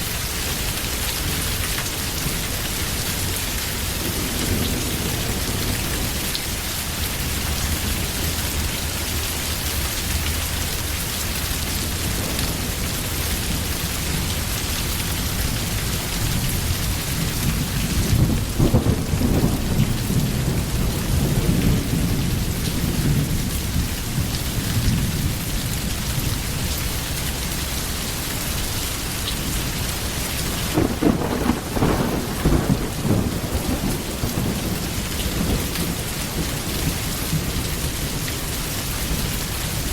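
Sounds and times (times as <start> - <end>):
heavy rain: 0.0 - 39.9
rolling thunder: 3.2 - 8.7, 11.7 - 25.6, 30.0 - 38.4.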